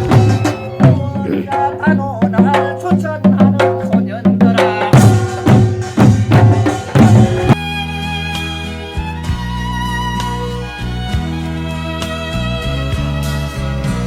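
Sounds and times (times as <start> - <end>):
held instrumental notes: 0.0 - 7.6
rhythmic drum strokes: 0.0 - 7.6
pitched instrumental tones: 0.7 - 5.6.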